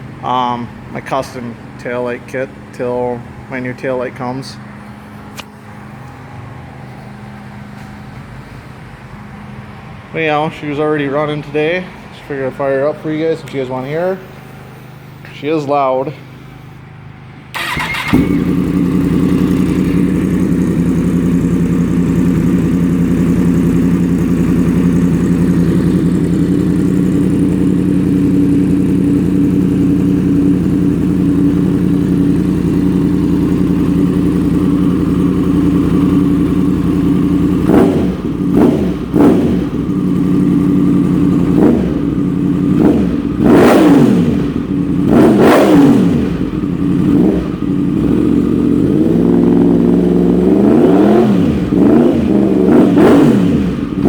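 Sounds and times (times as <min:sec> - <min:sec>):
motorcycle engine idling and revving: 0:16.4 - 0:54.0.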